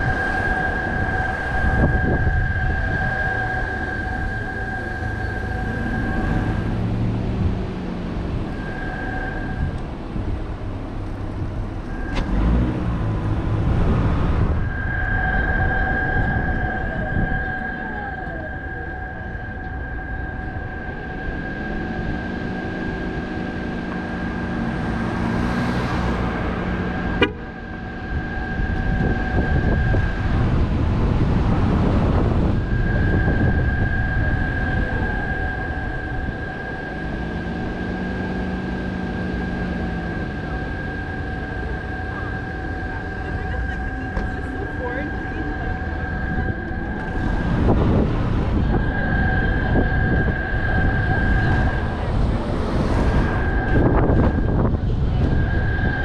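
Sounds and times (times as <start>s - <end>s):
high-pitched tone: 0.0s - 10.6s, 11.5s - 56.0s
road and engine rumble: 0.0s - 56.0s.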